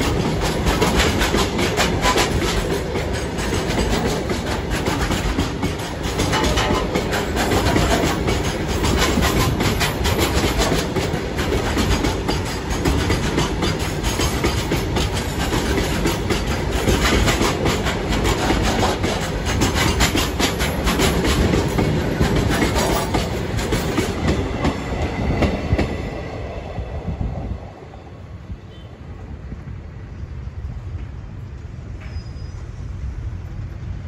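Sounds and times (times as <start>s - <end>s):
wheels clattering over rail joints: 0.0s - 26.0s
low train rumble: 0.0s - 34.0s.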